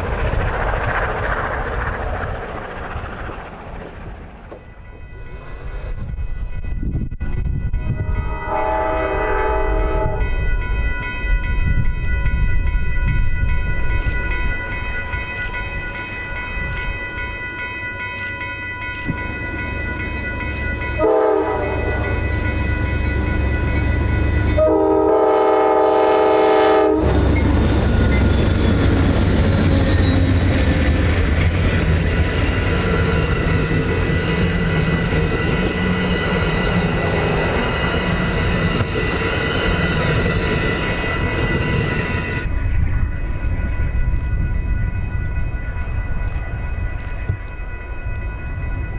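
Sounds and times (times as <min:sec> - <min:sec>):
train rumbling past: 0:00.0 - 0:48.9
locomotive horn blasts: 0:07.7 - 0:10.4, 0:21.0 - 0:22.3, 0:24.4 - 0:27.4.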